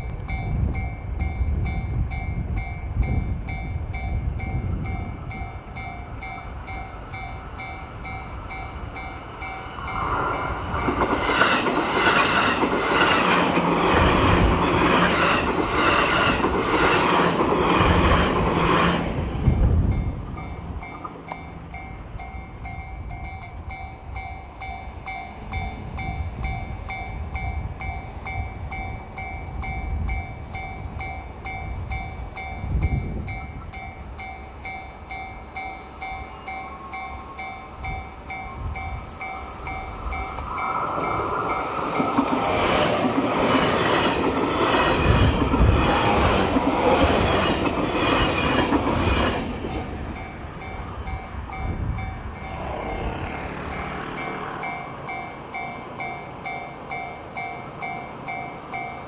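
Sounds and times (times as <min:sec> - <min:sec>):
electric train rushing past: 0:00.0 - 0:59.0
level-crossing alarm ringing: 0:03.6 - 0:17.4, 0:21.4 - 0:49.2.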